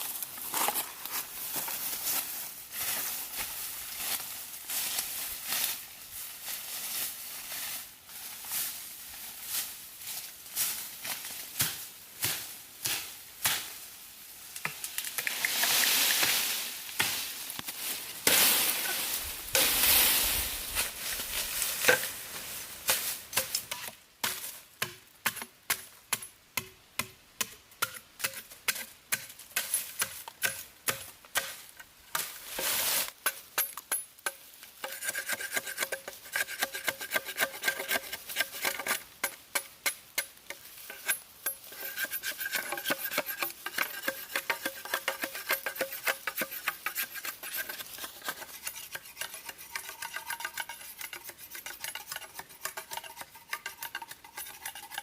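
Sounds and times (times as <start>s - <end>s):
sharp knocks and scrapes: 14.6s - 55.0s.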